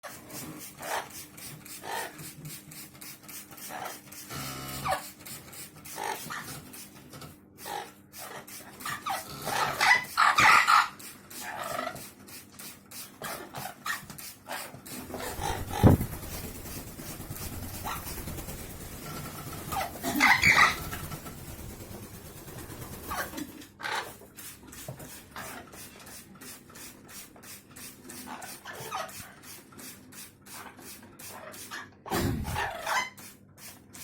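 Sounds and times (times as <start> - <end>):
parrots squawking: 7.6 - 12.0, 15.0 - 16.6, 17.2 - 21.2, 23.0 - 24.2, 32.1 - 33.2.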